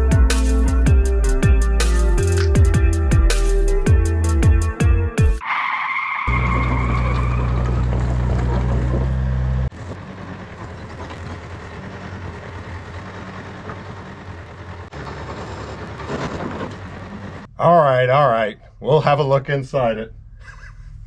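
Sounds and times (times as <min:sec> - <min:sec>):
engine running: 0:06.3 - 0:17.6.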